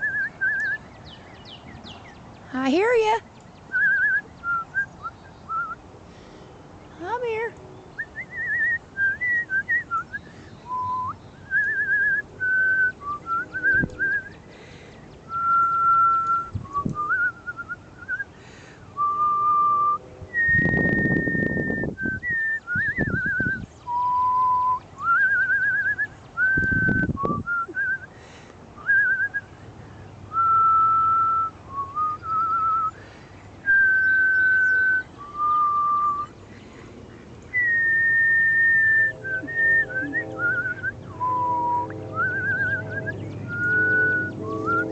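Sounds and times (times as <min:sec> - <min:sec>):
woman whistling a tune: 0:00.0 - 0:00.8, 0:03.7 - 0:05.8, 0:08.1 - 0:14.4, 0:15.3 - 0:18.3, 0:19.0 - 0:28.1, 0:28.8 - 0:29.5, 0:30.3 - 0:33.0, 0:33.7 - 0:36.3, 0:37.6 - 0:44.9
low rumbles: 0:33.6 - 0:44.9.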